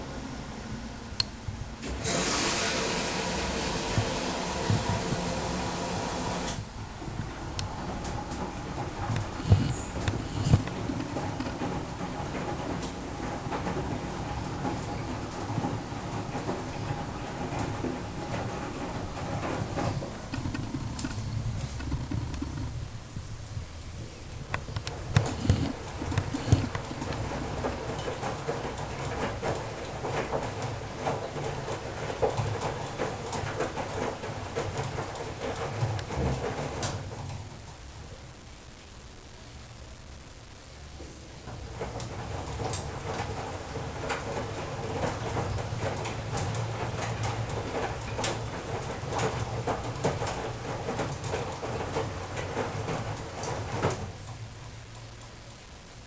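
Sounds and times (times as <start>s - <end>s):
washing machine drum humming: 0.0s - 38.7s, 40.4s - 56.0s
washing machine knocks and thuds: 3.2s - 6.2s, 25.1s - 37.2s
tumbling load clicks and knocks: 7.0s - 23.8s, 24.4s - 37.4s.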